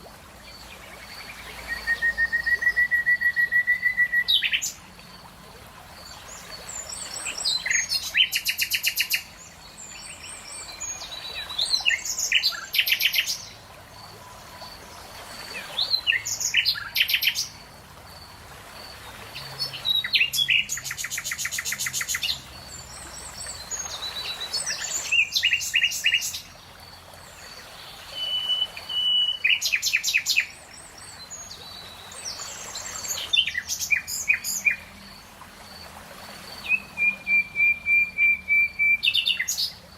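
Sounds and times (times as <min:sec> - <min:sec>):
songbird singing with trills: 0:00.6 - 0:04.8, 0:06.1 - 0:13.6, 0:15.5 - 0:17.6, 0:19.6 - 0:26.5, 0:28.0 - 0:35.1, 0:36.6 - 0:39.8.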